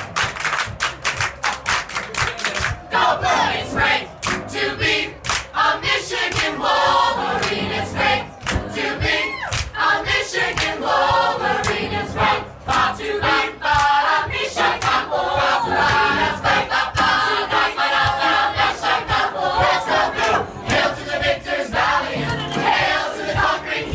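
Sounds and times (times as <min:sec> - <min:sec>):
crowd singing together: 0:02.6 - 0:23.9.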